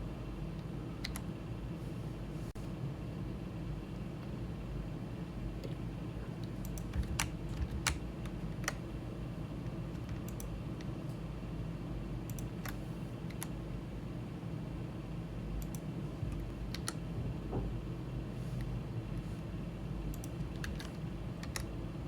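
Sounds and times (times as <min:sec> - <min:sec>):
steady low hum: 0:00.0 - 0:22.0
keyboard and mouse clicks: 0:01.0 - 0:01.3, 0:06.4 - 0:08.8, 0:10.0 - 0:10.9, 0:12.3 - 0:13.5, 0:15.6 - 0:17.0, 0:20.1 - 0:21.7.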